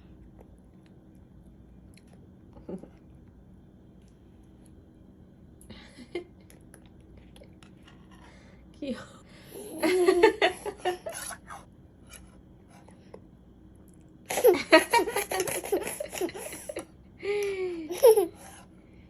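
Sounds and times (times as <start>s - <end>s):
toddler laughing and babbling: 17.9s - 18.6s.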